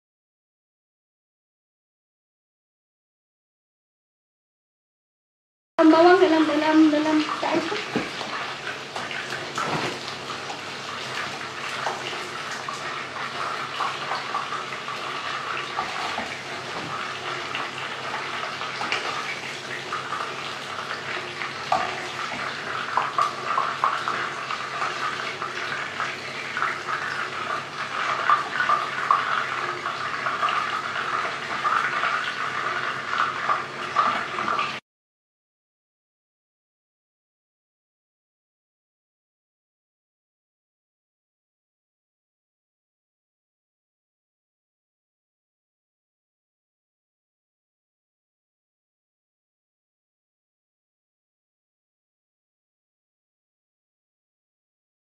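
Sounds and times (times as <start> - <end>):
chicken deep-frying in oil: 5.8 - 34.8.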